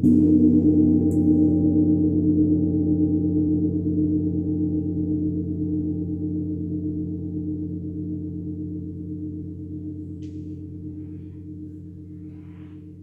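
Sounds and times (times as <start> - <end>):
deep gong ringing: 0.0 - 6.6.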